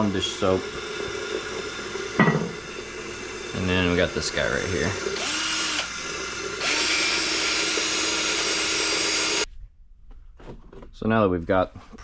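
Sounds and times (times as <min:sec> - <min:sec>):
power drill motor: 0:02.8 - 0:09.5.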